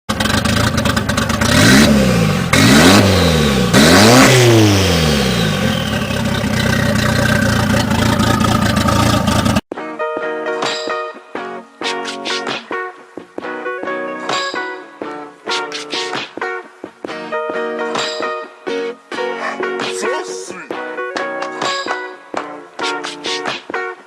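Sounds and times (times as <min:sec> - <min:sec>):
vehicle engine revving: 0:00.1 - 0:09.6.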